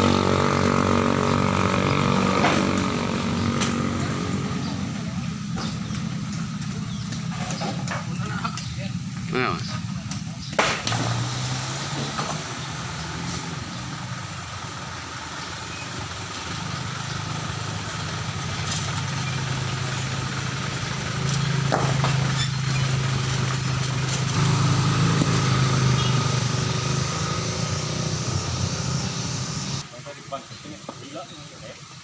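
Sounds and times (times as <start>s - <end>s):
heavy diesel engine running: 11.9s - 29.8s.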